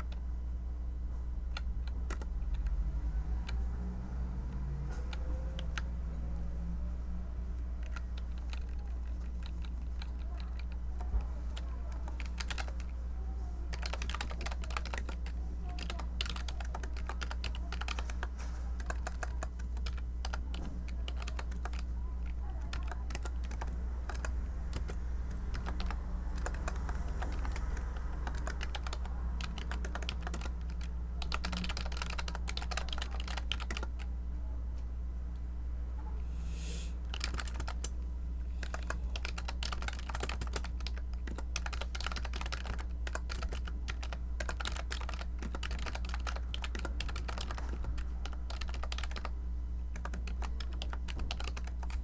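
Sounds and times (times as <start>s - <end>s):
steady low hum: 0.0s - 52.0s
keyboard keystroke clicks: 22.7s - 34.0s, 37.1s - 38.0s, 38.6s - 49.3s.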